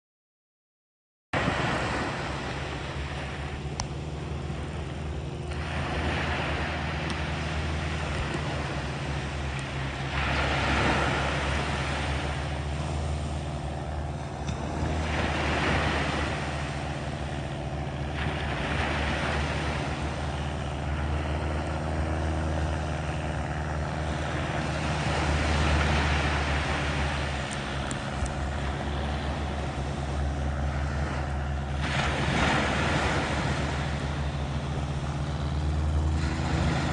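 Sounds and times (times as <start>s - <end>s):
low engine drone: 1.4s - 36.9s
small waves washing onto sand: 1.4s - 36.9s.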